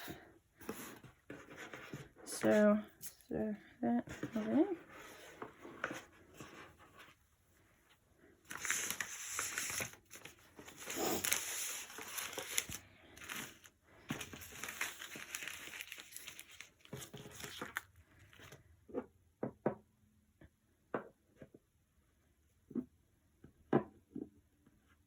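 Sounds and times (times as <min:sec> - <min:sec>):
packaging crinkling: 0:08.5 - 0:18.5.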